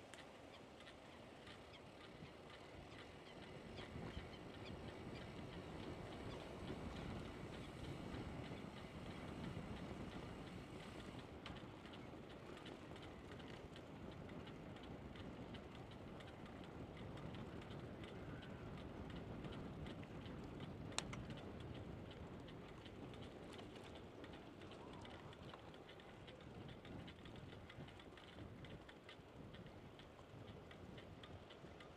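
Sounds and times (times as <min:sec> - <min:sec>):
bicycle freewheel ticking: 0:25.4 - 0:31.9.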